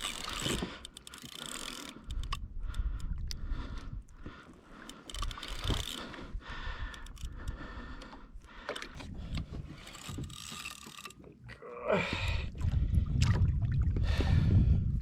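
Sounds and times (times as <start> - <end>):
fishing reel clicking winding: 0.0 - 11.3
water sloshing against kayak: 0.0 - 11.5, 12.1 - 14.4.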